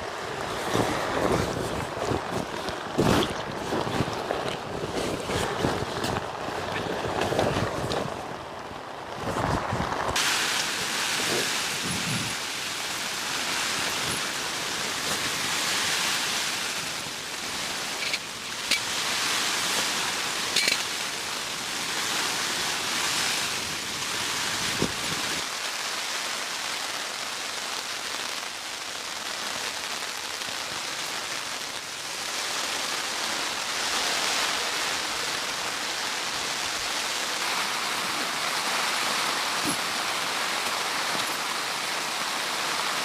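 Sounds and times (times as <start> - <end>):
steady rain hiss: 0.0 - 43.0.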